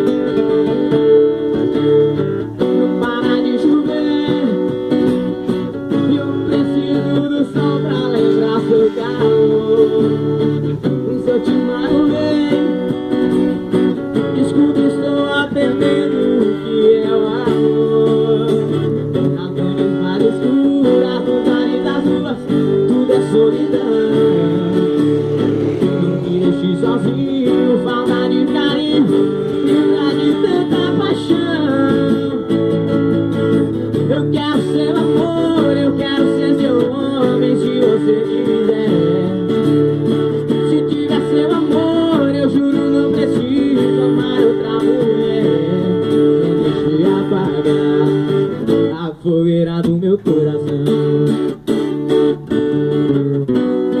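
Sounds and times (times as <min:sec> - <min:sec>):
acoustic guitar strumming: 0:00.0 - 0:54.0
gliding melody: 0:23.5 - 0:27.9.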